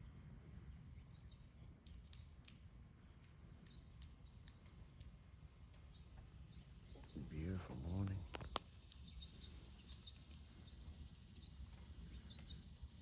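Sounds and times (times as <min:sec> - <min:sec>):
faint clicks: 0:08.3 - 0:09.1.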